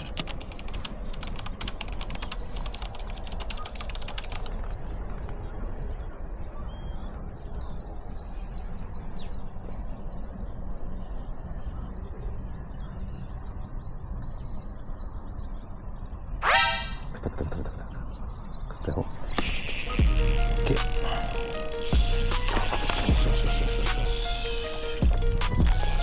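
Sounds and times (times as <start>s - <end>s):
rapid clicking: 0.0s - 5.0s, 19.1s - 26.0s
bird chirping: 0.0s - 26.0s.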